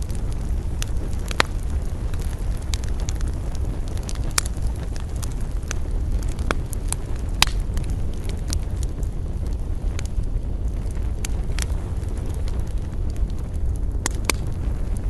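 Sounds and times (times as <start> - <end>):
campfire crackling and popping: 0.0 - 15.0
low rumble: 0.0 - 15.0.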